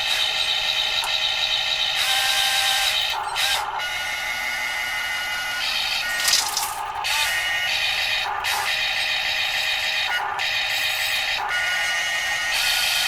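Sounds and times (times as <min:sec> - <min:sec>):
electric motors and gearboxes whining: 0:05.6 - 0:12.0.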